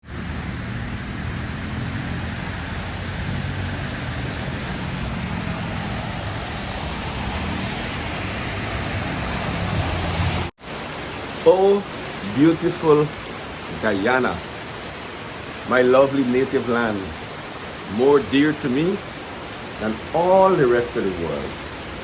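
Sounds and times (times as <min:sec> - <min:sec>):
low vehicle rumble: 0:00.0 - 0:10.5
heavy rain: 0:00.0 - 0:22.0.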